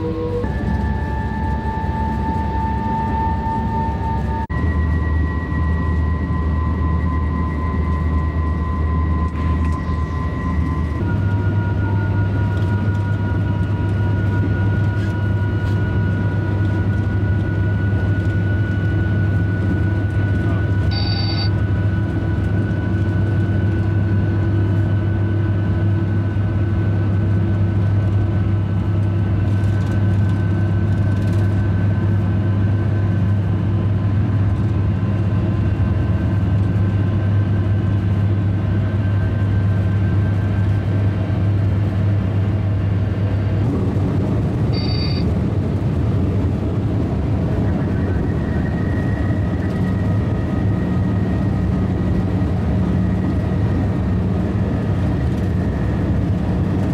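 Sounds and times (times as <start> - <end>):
faint whining tones: 0.0 - 24.6, 44.6 - 56.9
higher whine: 0.0 - 27.0, 31.8 - 56.9
high-speed train rumbling: 0.0 - 56.9
short high beep: 20.9 - 21.6, 44.7 - 45.3.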